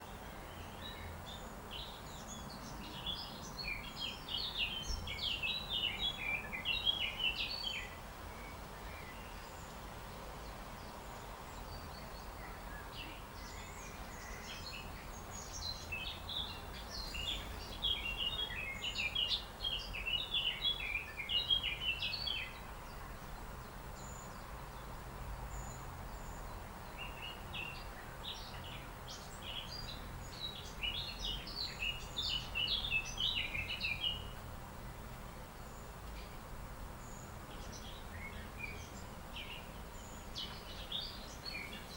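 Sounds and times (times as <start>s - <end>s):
bird chirping and twittering: 0.0s - 9.8s, 10.4s - 24.9s, 25.5s - 36.4s, 37.0s - 41.9s
background hiss and rumble: 0.0s - 41.9s.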